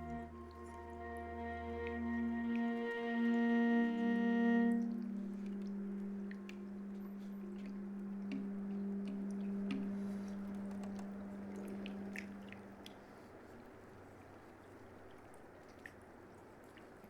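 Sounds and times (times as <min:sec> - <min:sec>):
viola and saxophone low note: 0:00.0 - 0:12.7
faint clicks: 0:04.7 - 0:13.0.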